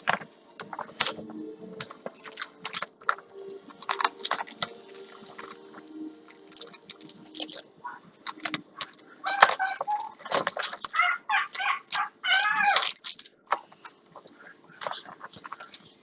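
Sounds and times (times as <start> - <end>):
packaging crinkling and clicking: 0.0 - 15.9.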